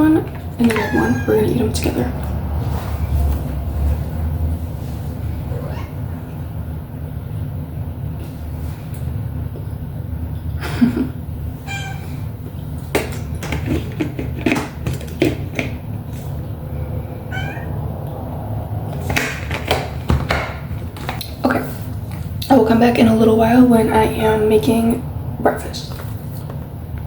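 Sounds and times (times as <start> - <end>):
steady low hum: 0.0 - 27.0
cat meowing: 0.7 - 1.5, 5.4 - 6.1, 11.6 - 12.2, 17.2 - 17.8.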